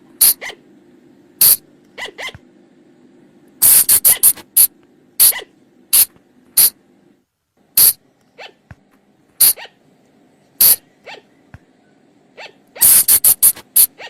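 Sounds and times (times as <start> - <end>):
shrill animal calls: 0.2 - 0.6, 1.4 - 2.4, 5.2 - 6.7, 7.8 - 8.6, 9.4 - 9.8, 10.6 - 11.4, 12.3 - 14.0.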